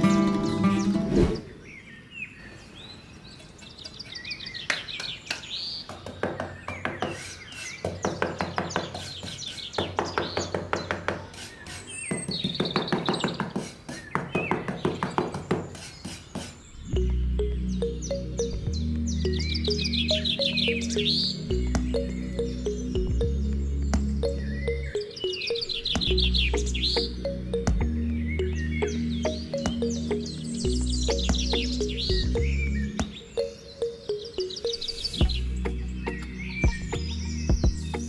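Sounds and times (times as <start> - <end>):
birds chirping and trilling: 0.0 - 38.0
background music: 16.8 - 38.0.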